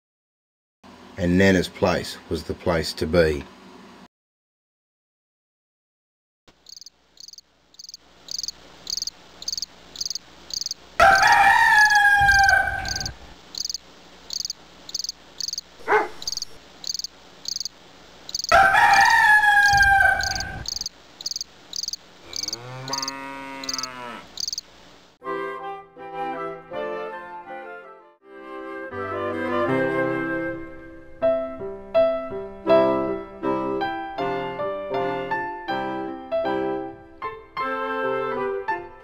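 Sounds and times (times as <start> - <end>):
crickets chirping: 6.5 - 25.0
rooster crowing: 10.6 - 13.7, 18.3 - 24.6
low animal call: 22.2 - 24.4.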